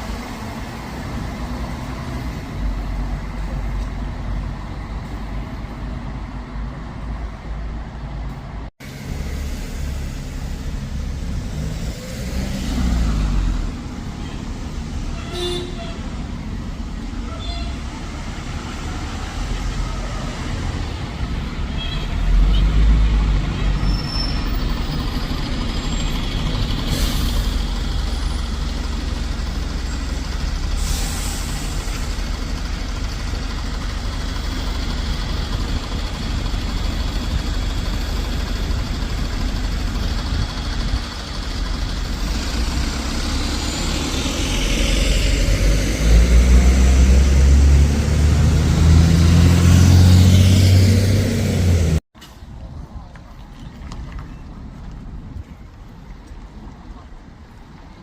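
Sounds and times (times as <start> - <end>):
diesel bus engine rumbling: 0.0 - 53.5
air hisses: 30.7 - 32.0.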